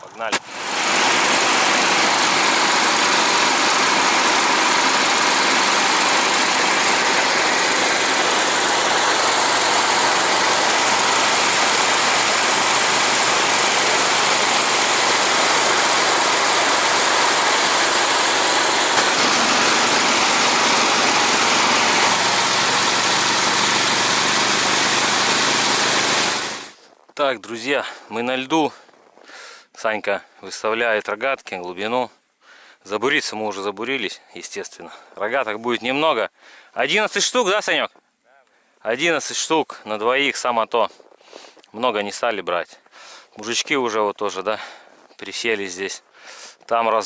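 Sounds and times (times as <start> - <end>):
snow tow engine running: 0.0 - 26.8.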